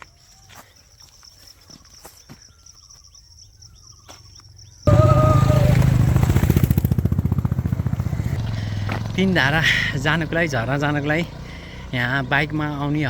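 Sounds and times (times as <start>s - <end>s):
faint bird chirps: 0.0s - 5.3s
motorcycle engine running: 4.9s - 13.0s.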